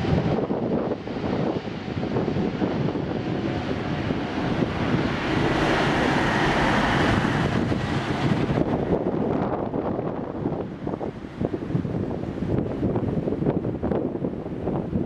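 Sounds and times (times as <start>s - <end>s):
jet engines rushing: 0.0s - 15.0s
faint engine whine: 1.5s - 13.3s.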